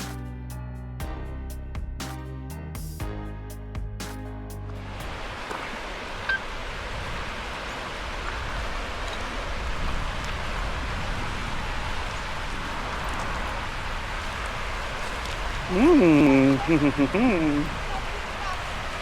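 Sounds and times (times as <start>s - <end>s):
steady rushing noise: 4.8s - 19.0s.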